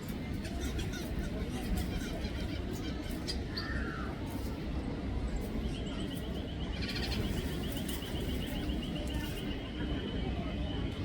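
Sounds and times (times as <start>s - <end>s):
small birds chirping and trilling: 0.3s - 4.6s, 5.4s - 9.6s.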